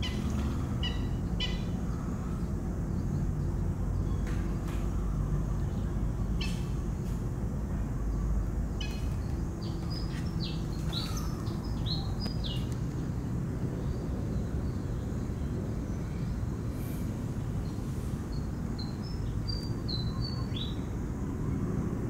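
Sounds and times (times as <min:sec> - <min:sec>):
low background rumble: 0:00.0 - 0:22.0.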